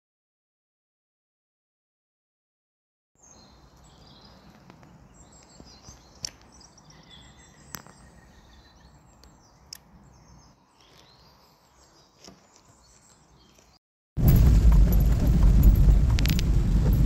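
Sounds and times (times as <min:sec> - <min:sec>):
birds chirping: 0:03.2 - 0:17.0
low outdoor rumble: 0:14.2 - 0:17.0.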